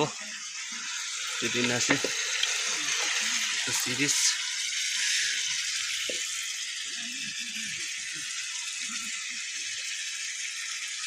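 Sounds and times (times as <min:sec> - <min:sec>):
curry sizzling in a pot: 0:00.0 - 0:11.0
faint voices: 0:06.8 - 0:09.8.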